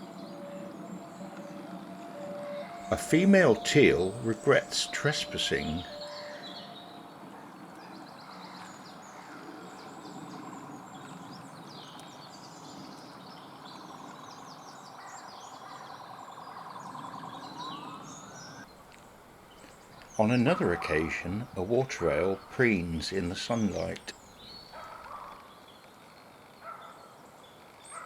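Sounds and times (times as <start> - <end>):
small birds chirping: 0.0 - 7.1.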